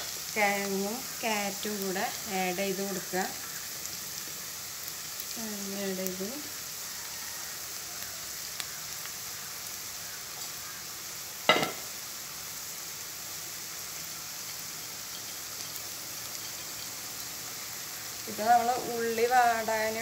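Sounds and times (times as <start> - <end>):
vegetables sizzling in a pot: 0.0 - 20.0
sharp clink against pot: 11.5 - 11.8.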